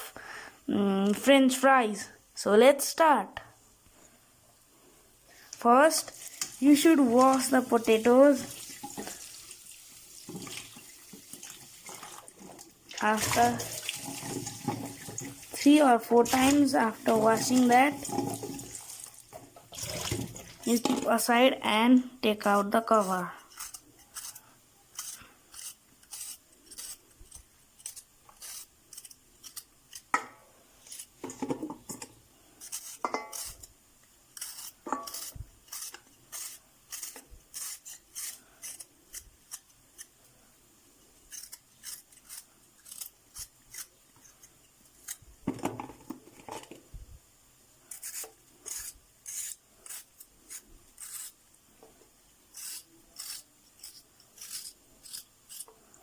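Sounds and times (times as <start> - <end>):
blade scraping potato skin: 13.0 - 18.4, 20.6 - 21.4, 22.4 - 30.2, 30.8 - 31.2, 32.6 - 33.7, 34.3 - 40.2, 41.3 - 45.3, 47.9 - 51.4, 52.5 - 55.8.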